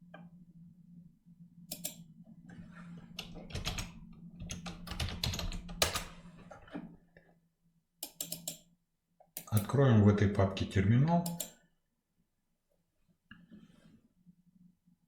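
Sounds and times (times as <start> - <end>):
low steady hum: 0.0 - 15.0
computer keyboard typing: 3.2 - 6.2.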